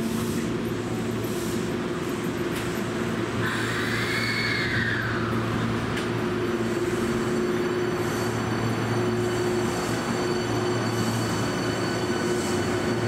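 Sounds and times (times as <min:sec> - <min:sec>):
train and station noise: 0:00.0 - 0:13.0
high squeal: 0:03.4 - 0:05.6, 0:06.4 - 0:13.0.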